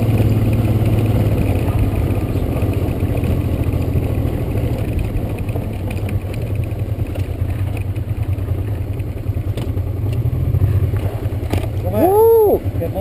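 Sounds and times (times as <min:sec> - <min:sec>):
motorcycle engine running: 0:00.0 - 0:13.0
faint clicks and clatter: 0:00.2 - 0:10.3.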